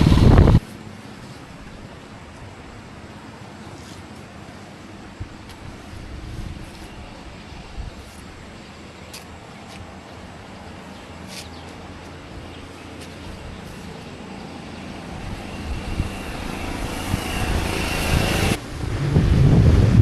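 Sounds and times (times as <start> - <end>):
wind buffeting microphone: 0.0 - 0.6, 5.0 - 8.8, 9.4 - 20.0
vehicle road noise: 0.0 - 20.0.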